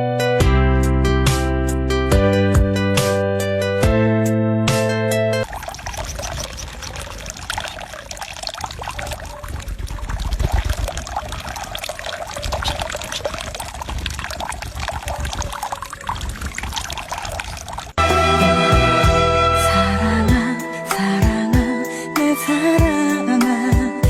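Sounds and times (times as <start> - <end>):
running water splashing: 5.4 - 18.0.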